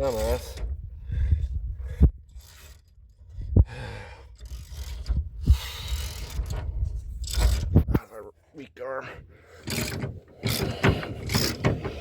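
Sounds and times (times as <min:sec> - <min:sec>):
heavy straining breaths: 0:00.3 - 0:06.8, 0:09.0 - 0:12.0
wrench ratcheting: 0:02.3 - 0:03.0, 0:04.4 - 0:06.6, 0:09.6 - 0:12.0
tool scraping: 0:09.5 - 0:12.0.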